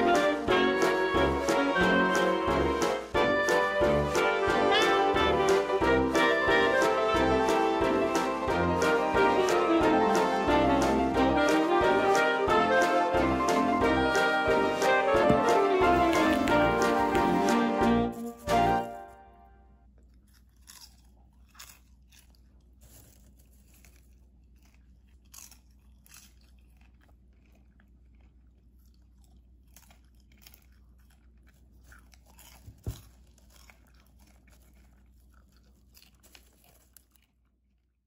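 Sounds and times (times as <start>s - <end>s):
popcorn crunching: 0.0s - 19.2s, 19.8s - 38.0s
popcorn rustling in bowl: 22.0s - 24.5s.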